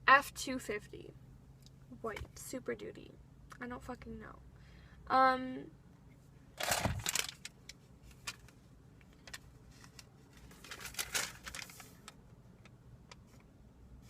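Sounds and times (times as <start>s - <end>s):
rustling: 6.6s - 8.6s, 9.2s - 12.2s.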